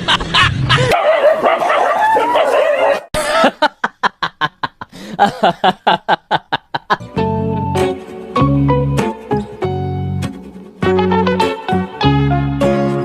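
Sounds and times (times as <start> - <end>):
hard rhythmic laughter: 0.0 - 1.0, 3.1 - 7.1.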